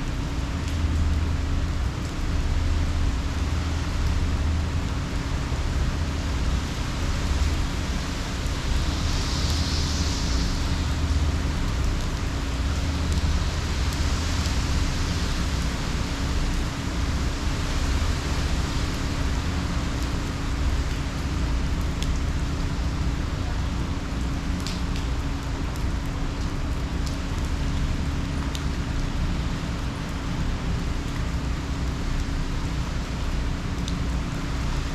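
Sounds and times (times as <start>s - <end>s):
heavy rain falling: 0.0s - 34.9s
steady hum: 3.3s - 23.3s
low rumble: 6.8s - 14.8s.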